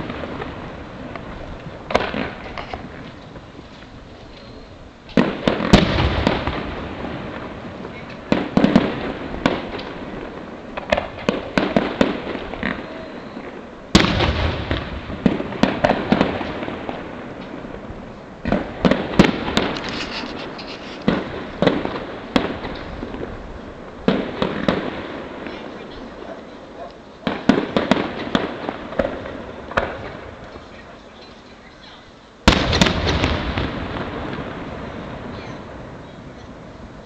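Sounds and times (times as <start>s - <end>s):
firework pops: 0.0s - 4.5s, 5.1s - 6.8s, 7.8s - 13.1s, 14.0s - 16.7s, 18.4s - 23.3s, 24.1s - 31.5s, 32.5s - 34.5s.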